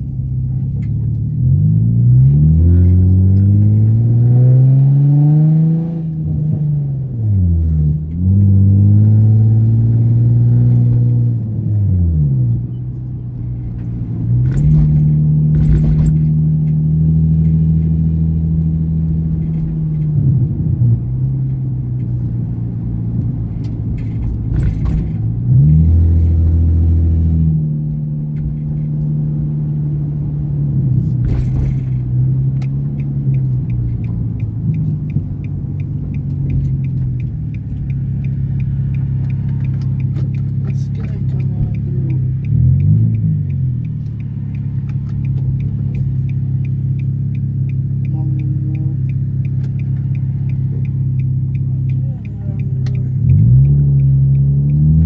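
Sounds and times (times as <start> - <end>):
car engine heard from cabin: 0.0 - 55.0
light regular ticking: 12.6 - 55.0.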